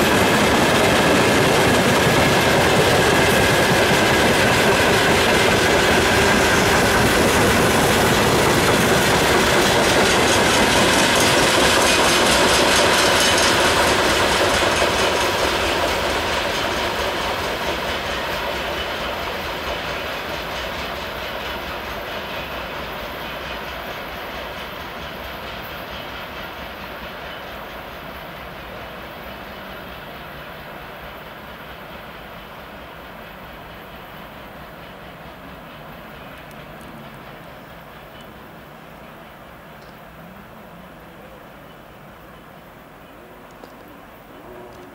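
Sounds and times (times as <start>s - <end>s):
wheels clickety-clack on rails: 0.0s - 44.9s.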